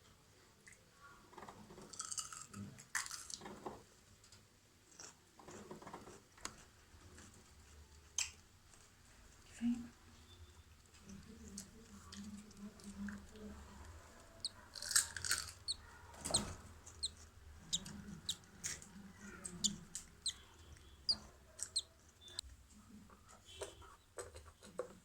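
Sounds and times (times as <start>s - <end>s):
budgerigars chirping: 14.4s - 18.4s, 19.4s - 22.4s.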